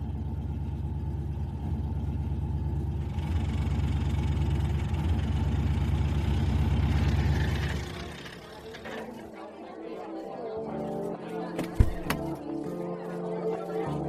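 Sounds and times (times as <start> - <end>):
vehicle engine idling: 0.0 - 9.4.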